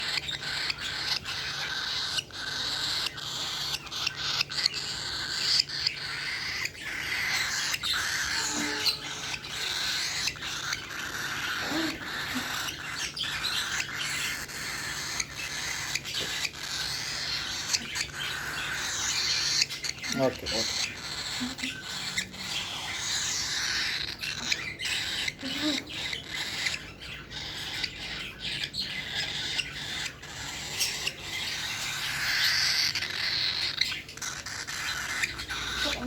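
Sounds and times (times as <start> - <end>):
birds chirping and chattering: 0.0 - 36.0.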